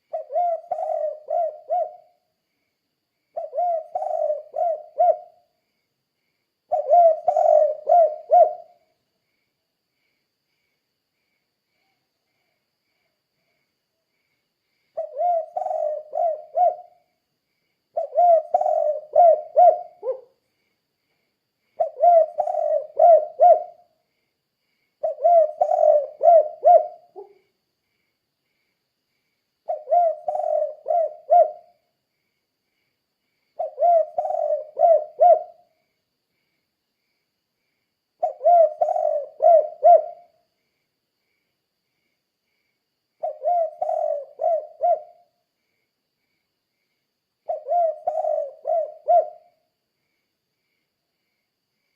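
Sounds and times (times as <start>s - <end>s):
dove cooing: 0.0s - 2.2s, 3.4s - 5.5s, 6.7s - 8.8s, 15.0s - 17.1s, 17.9s - 20.4s, 21.8s - 23.9s, 25.0s - 27.4s, 29.7s - 31.8s, 33.6s - 35.7s, 38.2s - 40.4s, 43.2s - 45.3s, 47.4s - 49.6s.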